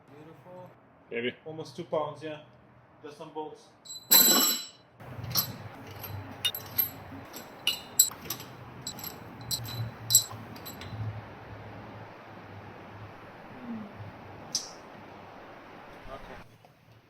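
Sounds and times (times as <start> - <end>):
loud metallic clank: 3.9 - 10.9
metal parts clinking: 3.9 - 11.0.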